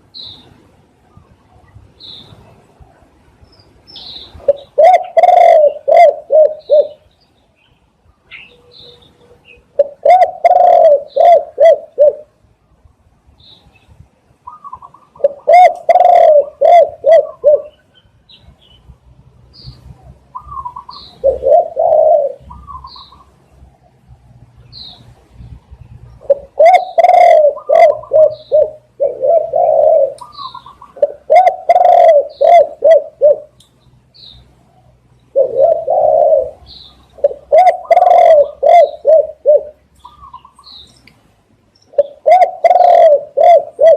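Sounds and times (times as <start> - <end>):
dove cooing: 4.4 - 7.0, 8.3 - 12.3, 14.4 - 17.9, 19.8 - 23.3, 26.1 - 33.6, 35.3 - 40.6, 41.9 - 43.9.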